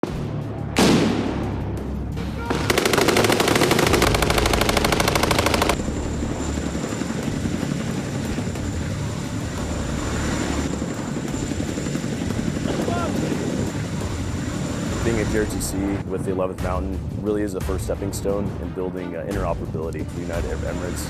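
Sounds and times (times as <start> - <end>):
steady drone: 1.4 - 15.5
machine gun firing: 2.5 - 5.8.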